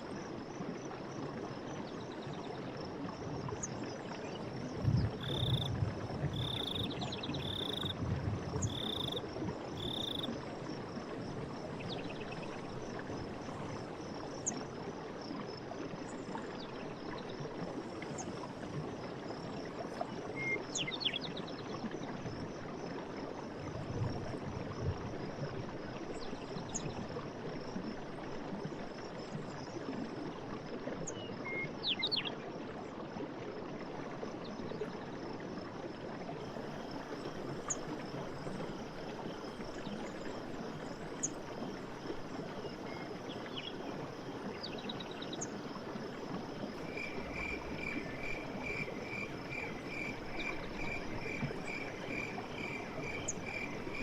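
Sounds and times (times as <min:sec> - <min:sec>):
rushing stream: 0:00.0 - 0:54.0
chorus of chirping insects: 0:05.0 - 0:05.7, 0:06.3 - 0:08.0, 0:08.6 - 0:10.3, 0:36.4 - 0:54.0.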